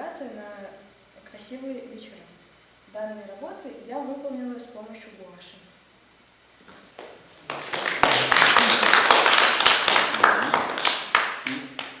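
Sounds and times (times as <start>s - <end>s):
audience applauding: 7.4s - 12.0s.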